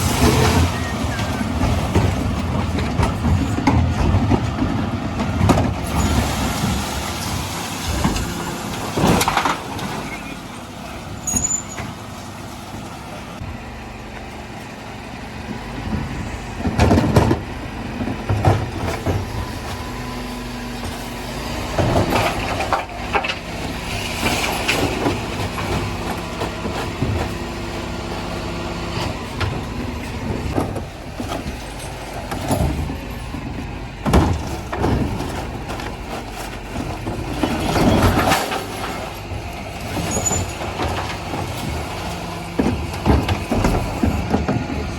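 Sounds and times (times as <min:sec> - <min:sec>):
loud bangs and clatter of bins: 0:00.0 - 0:10.9, 0:15.6 - 0:44.9
truck engine running: 0:00.0 - 0:44.9.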